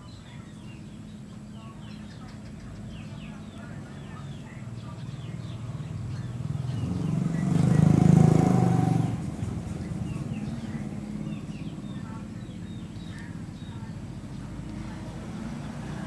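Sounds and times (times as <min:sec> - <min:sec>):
birds chirping: 0:00.0 - 0:16.0
motor vehicle passing by: 0:04.2 - 0:16.0.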